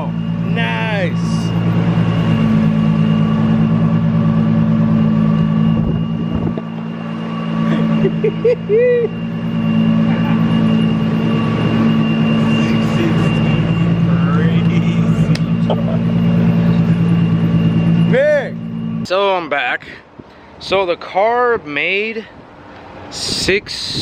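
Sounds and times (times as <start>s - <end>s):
low mechanical hum of machinery: 0.0s - 24.0s.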